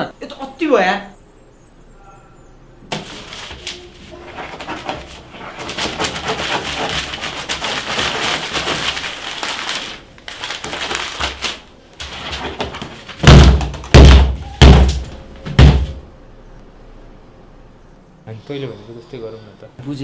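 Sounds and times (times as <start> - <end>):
papers rustling on a table: 2.9 - 16.0
heavy deep thumps: 13.2 - 16.0.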